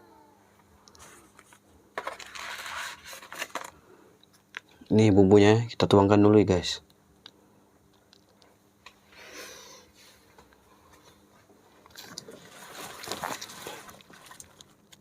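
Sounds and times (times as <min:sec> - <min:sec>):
sachet rustling: 0:12.0 - 0:14.9.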